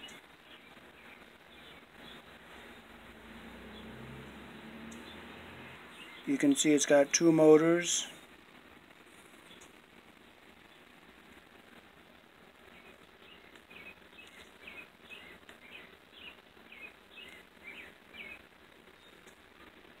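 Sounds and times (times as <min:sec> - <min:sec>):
low steady background noise: 0:00.0 - 0:20.0
faint bird chirps: 0:12.7 - 0:19.3.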